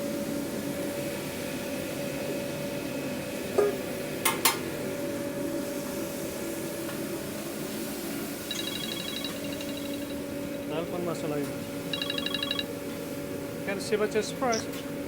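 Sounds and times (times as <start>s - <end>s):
phone ringing: 8.4s - 10.8s, 11.6s - 12.8s.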